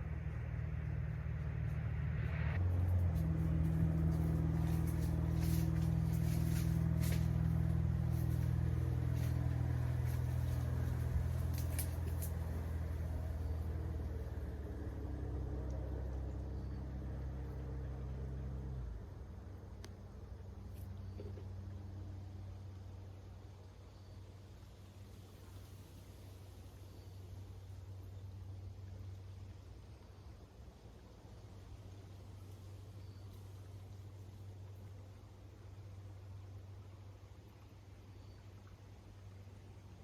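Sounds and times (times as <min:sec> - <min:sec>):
motor droning: 0:00.0 - 0:19.1.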